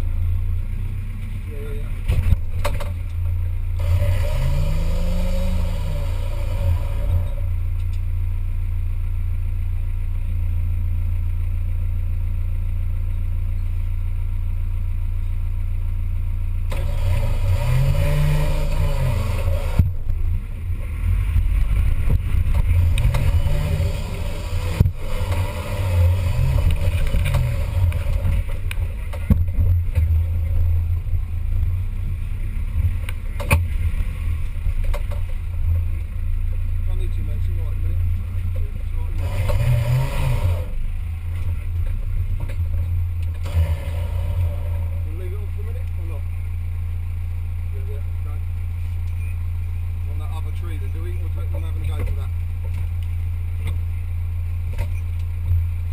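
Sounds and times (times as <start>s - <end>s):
off-road vehicle engine revving: 0.0s - 55.9s
knocks and clatter: 2.1s - 3.2s, 26.6s - 30.4s.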